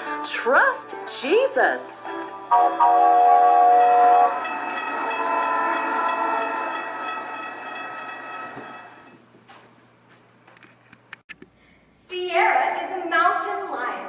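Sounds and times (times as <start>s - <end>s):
train horn chord: 2.5s - 9.0s
train wheels clattering over rail joints: 4.4s - 9.2s.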